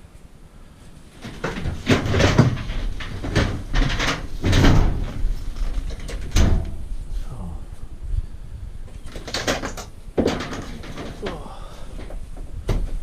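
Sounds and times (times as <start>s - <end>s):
scrap items knocking and scraping: 1.2s - 6.8s, 9.1s - 11.4s.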